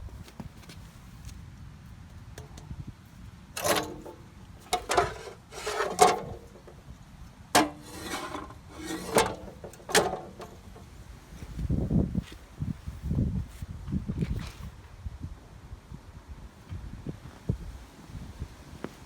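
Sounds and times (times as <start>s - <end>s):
hard parts scraping and rubbing: 3.6s - 6.8s, 7.6s - 10.9s.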